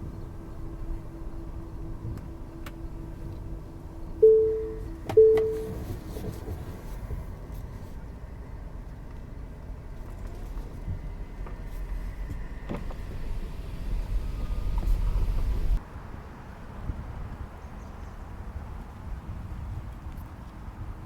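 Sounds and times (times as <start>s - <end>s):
steady beep tone: 0.0s - 5.8s
car rumbling slowly: 0.0s - 18.2s.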